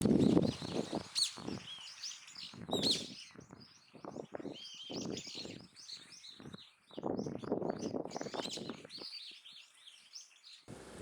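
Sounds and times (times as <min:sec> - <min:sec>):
low noise: 0:10.7 - 0:11.0.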